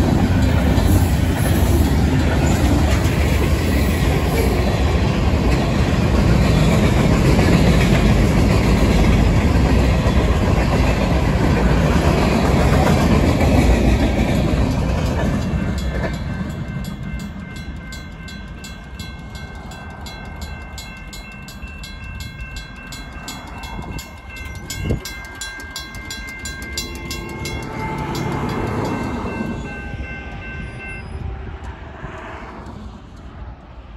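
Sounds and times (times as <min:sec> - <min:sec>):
freight cars clickety-clack on rails: 0:00.0 - 0:33.9
mechanical crossing bell striking: 0:15.3 - 0:31.2
electronic crossing bell ringing: 0:15.4 - 0:31.2.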